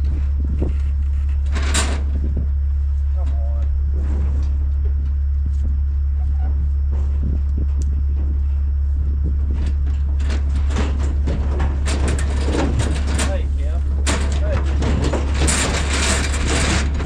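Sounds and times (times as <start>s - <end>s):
diesel engine idling: 2.1s - 17.0s
sharp clattering and knocking: 9.4s - 17.0s.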